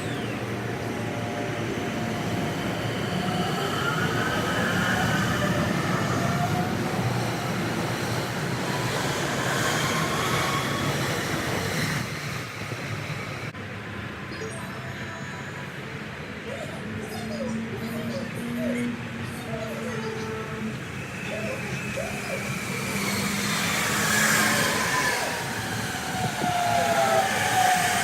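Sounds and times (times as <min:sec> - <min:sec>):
faint whining tones rising: 0:00.0 - 0:28.0
sped-up train on rails: 0:00.0 - 0:28.0.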